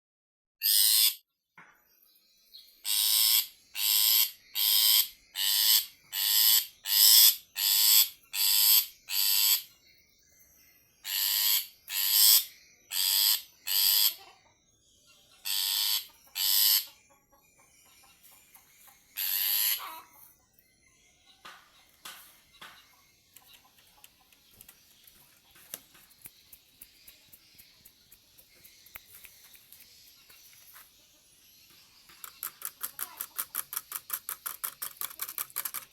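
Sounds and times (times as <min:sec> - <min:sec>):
bird giving harsh rasping calls: 0:00.6 - 0:01.2, 0:02.9 - 0:09.7, 0:11.1 - 0:14.2, 0:15.4 - 0:16.9, 0:19.2 - 0:20.1.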